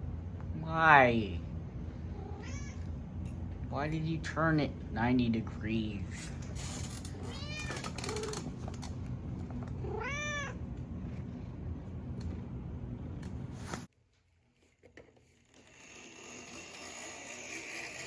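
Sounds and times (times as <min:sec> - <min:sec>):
steady low rumble: 0:00.0 - 0:13.6
cat meowing: 0:02.2 - 0:02.9, 0:07.1 - 0:08.4, 0:09.8 - 0:10.6.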